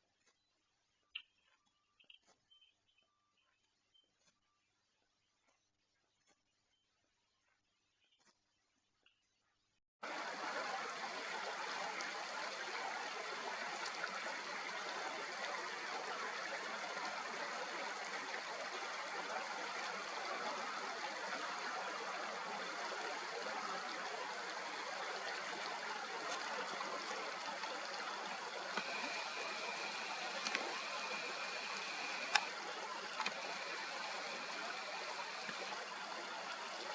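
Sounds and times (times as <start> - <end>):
stream rushing water: 10.0 - 36.9.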